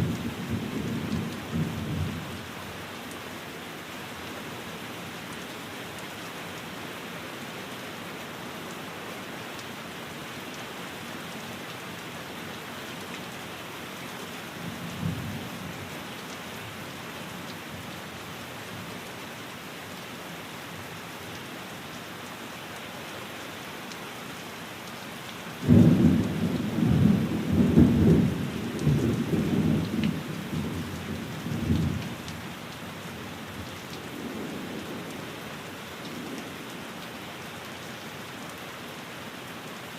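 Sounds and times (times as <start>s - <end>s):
faint rumble of thunder: 0.0s - 2.4s, 25.6s - 32.2s
rain falling on a window: 0.0s - 39.9s.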